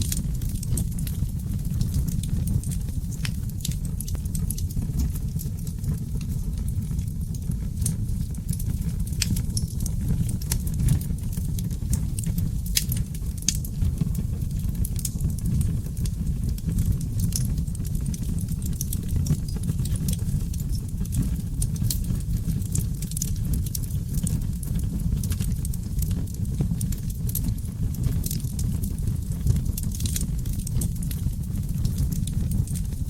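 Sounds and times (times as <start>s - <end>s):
fire crackling and popping: 0.0s - 33.0s
rumble of flames: 0.0s - 33.0s.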